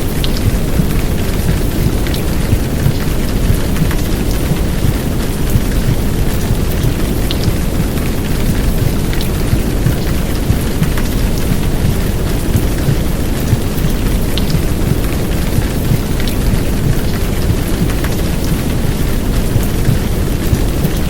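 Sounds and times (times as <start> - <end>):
heavy rain downpour: 0.0 - 21.0
white noise: 0.0 - 21.0.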